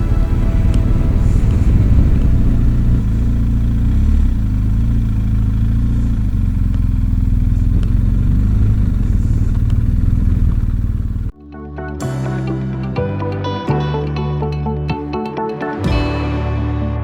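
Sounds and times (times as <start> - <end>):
motorcycle engine droning: 0.0 - 11.3.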